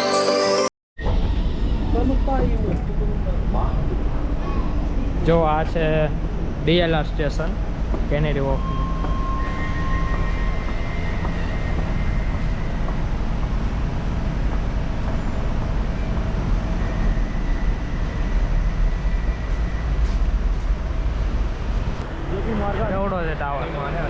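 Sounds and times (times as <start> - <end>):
train rumbling: 1.0 - 24.0
faint high whine: 5.6 - 13.3.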